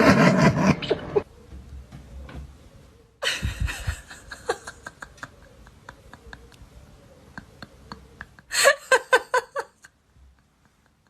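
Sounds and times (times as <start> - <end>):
person laughing: 3.2 - 11.0.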